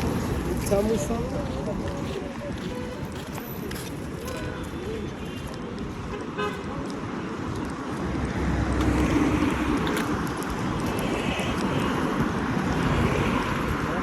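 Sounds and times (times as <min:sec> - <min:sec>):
street noise: 0:00.0 - 0:14.0
motor vehicle passing: 0:08.0 - 0:14.0.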